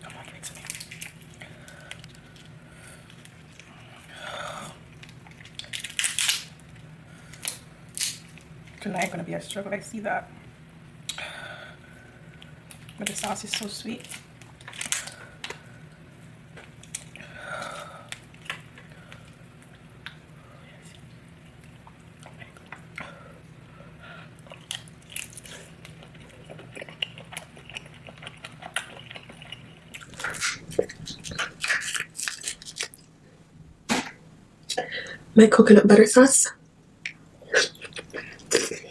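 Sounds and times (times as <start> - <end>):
wet chewing and biting: 24.4 - 33.2.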